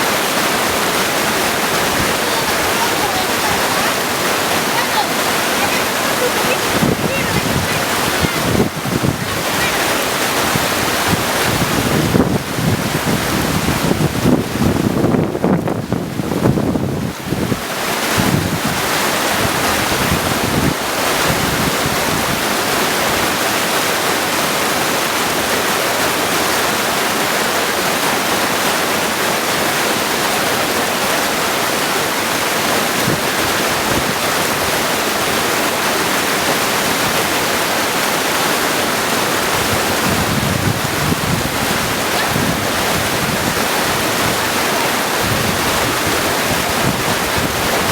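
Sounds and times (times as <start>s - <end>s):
creek rushing over stones: 0.0s - 47.9s
wind rumble on microphone: 5.8s - 23.4s, 39.4s - 47.9s.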